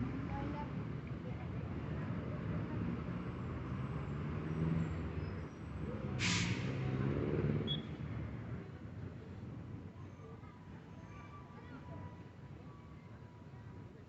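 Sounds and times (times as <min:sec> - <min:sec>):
air brake hiss: 0:06.2 - 0:06.8.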